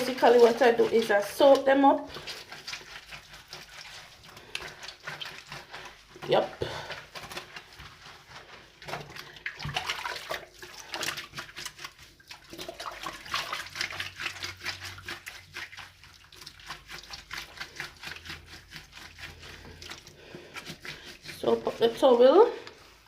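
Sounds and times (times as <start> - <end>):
wet laundry splashing in water: 0.0 - 23.0.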